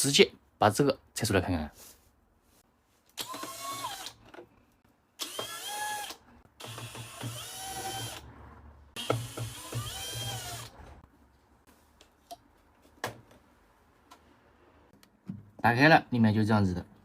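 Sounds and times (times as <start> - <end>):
power screwdriver whining: 3.2 - 4.2, 5.2 - 8.2.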